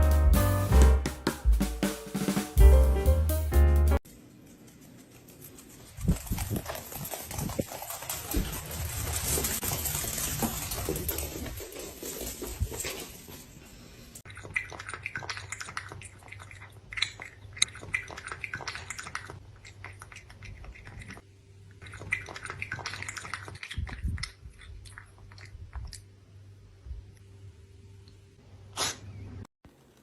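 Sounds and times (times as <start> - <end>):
chewing and crunching: 4.2 - 13.1, 14.2 - 26.2.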